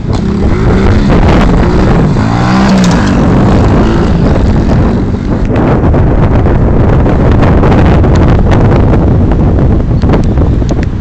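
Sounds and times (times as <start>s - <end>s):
pit bike engine revving: 0.0s - 5.9s.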